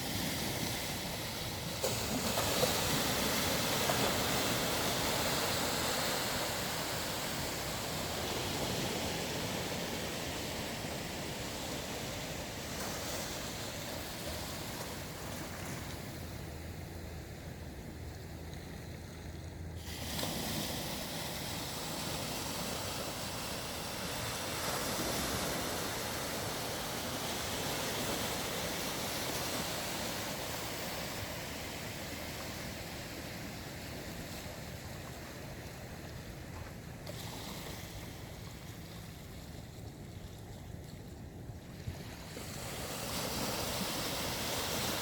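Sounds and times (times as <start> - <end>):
ocean wave breaking: 0.0 - 16.5, 19.8 - 34.6, 41.9 - 45.0
surf wash: 0.0 - 45.0.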